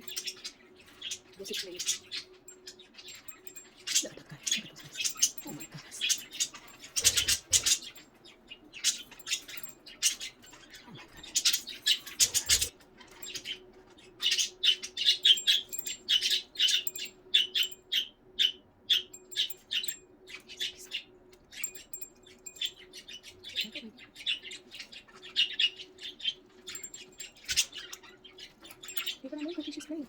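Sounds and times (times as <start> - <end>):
budgerigars chirping and squawking: 0.0 - 30.0.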